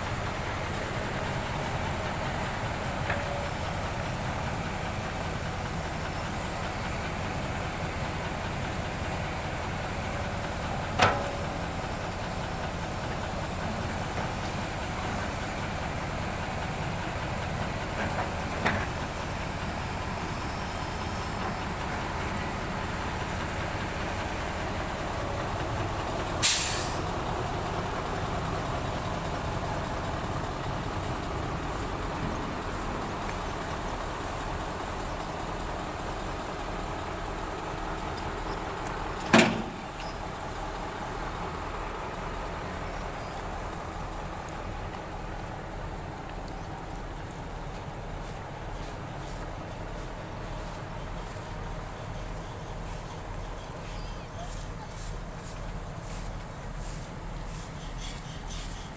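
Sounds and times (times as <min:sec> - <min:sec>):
heavy diesel machinery running: 0:00.0 - 0:58.9
short hiss: 0:26.4 - 0:27.1.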